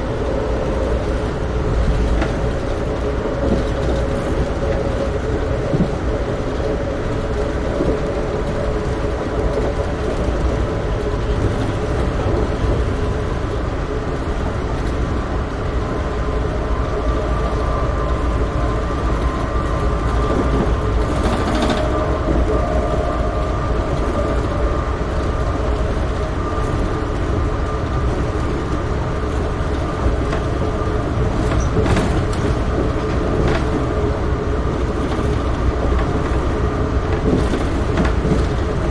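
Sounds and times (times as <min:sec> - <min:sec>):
constant hum: 0:00.0 - 0:38.9
train wheels rumbling on rail: 0:00.0 - 0:38.9.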